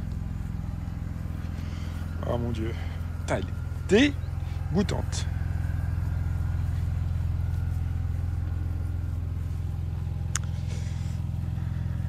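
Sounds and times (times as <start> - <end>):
car engine idling: 0.0 - 12.0
short click: 10.3 - 10.5.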